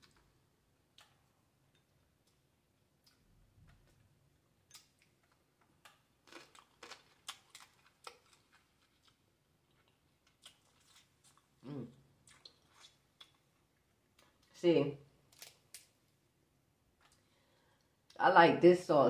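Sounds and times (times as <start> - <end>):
person chewing: 0.9 - 14.5.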